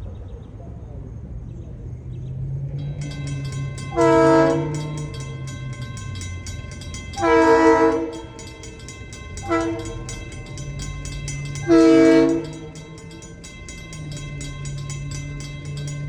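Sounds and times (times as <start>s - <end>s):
locomotive air horn blasts: 3.9s - 5.1s, 7.2s - 8.5s, 9.4s - 10.3s, 11.6s - 13.0s.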